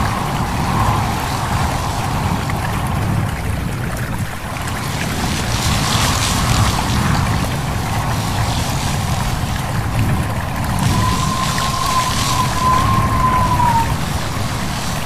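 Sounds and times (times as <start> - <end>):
deep rumble: 0.0 - 15.0
wind rustling leaves: 0.0 - 15.0.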